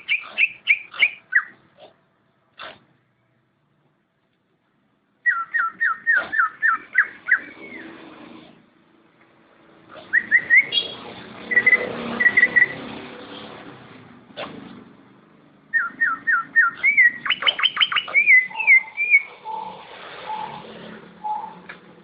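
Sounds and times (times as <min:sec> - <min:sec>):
bird whistling song: 0:00.0 - 0:01.6, 0:05.2 - 0:08.0, 0:10.0 - 0:12.8, 0:15.7 - 0:21.7.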